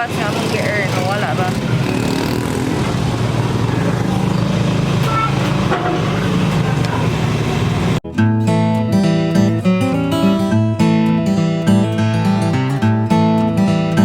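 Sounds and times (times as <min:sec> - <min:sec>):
car engine humming: 0:00.0 - 0:08.0
traffic noise: 0:00.0 - 0:08.0
strummed acoustic guitar music: 0:00.0 - 0:14.0.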